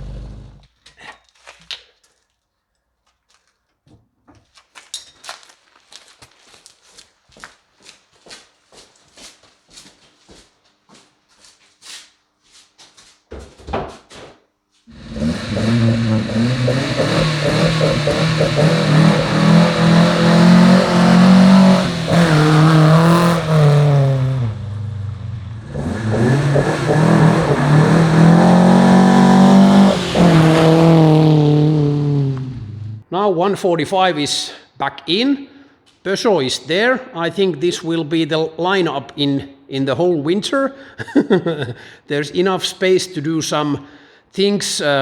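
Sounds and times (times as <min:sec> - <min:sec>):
car engine revving: 0:00.0 - 0:00.6, 0:14.9 - 0:33.0.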